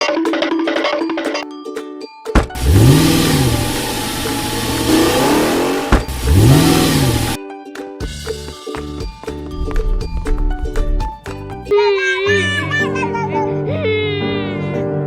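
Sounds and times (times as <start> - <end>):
music: 0.0 - 15.0
car engine revving: 2.4 - 7.4, 9.6 - 11.1
loud rushing noise: 9.6 - 11.1.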